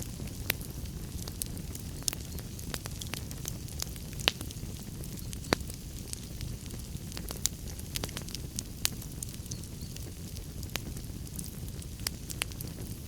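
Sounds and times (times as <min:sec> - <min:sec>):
fire rumbling: 0:00.0 - 0:13.0
wood fire crackles and pops: 0:00.0 - 0:13.0.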